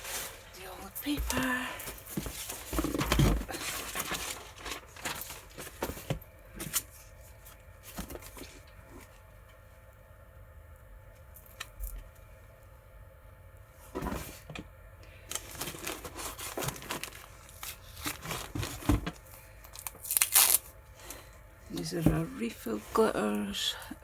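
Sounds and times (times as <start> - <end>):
paper packaging tearing and crinkling: 2.4 - 5.9, 15.3 - 19.1, 19.8 - 20.7.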